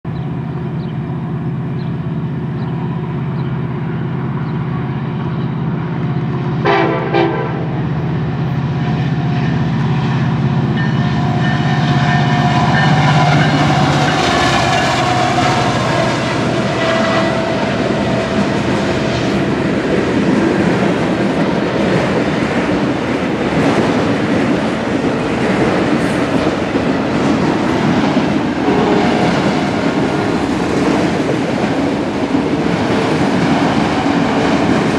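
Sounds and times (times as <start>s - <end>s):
diesel locomotive engine drone: 0.0s - 34.9s
freight cars rumbling: 0.0s - 34.9s
train horn blast: 6.6s - 7.8s, 9.0s - 19.4s, 28.6s - 29.7s.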